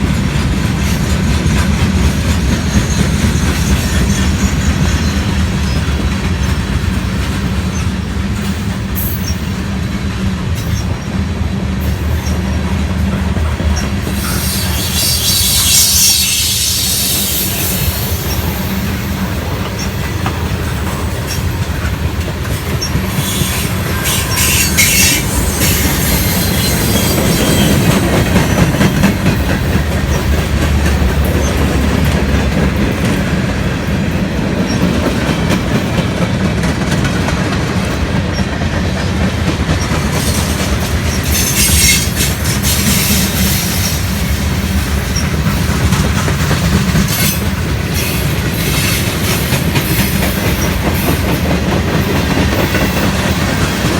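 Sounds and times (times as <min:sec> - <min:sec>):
train cars rumbling past: 0:00.0 - 0:53.9
train wheels clacking: 0:00.0 - 0:53.9
wheel squeal: 0:13.7 - 0:18.7, 0:22.7 - 0:29.1, 0:41.1 - 0:44.2.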